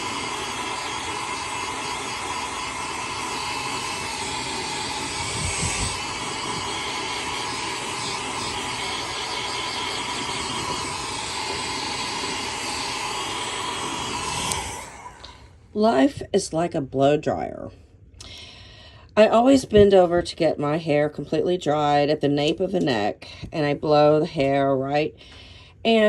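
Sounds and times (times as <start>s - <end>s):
hair dryer blowing: 0.0s - 15.6s.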